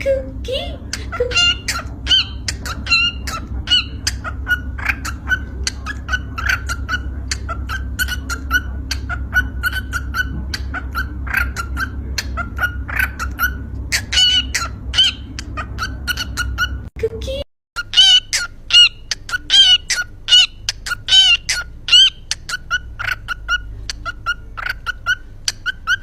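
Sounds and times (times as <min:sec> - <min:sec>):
steady low hum: 0:00.0 - 0:26.0
lovebird chirping: 0:00.9 - 0:16.9, 0:17.8 - 0:26.0.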